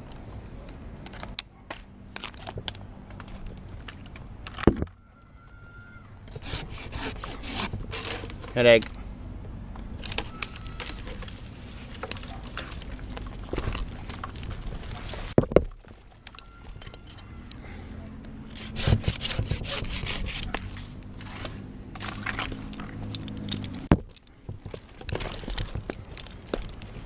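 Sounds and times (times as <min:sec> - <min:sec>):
scraping and rubbing on wood: 0:06.3 - 0:08.6, 0:18.5 - 0:20.9.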